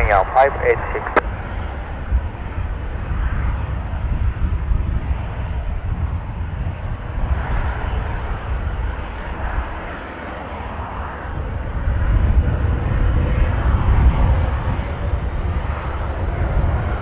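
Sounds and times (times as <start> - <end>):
jet airliner engines rushing: 0.0 - 17.0
wind rumbling on microphone: 0.0 - 17.0.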